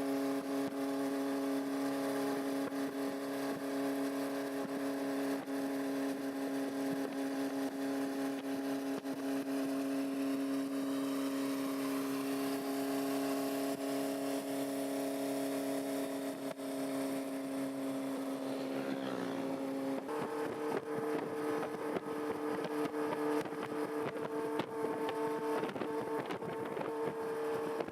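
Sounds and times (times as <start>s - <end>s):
motorcycle engine running: 0.0s - 27.9s.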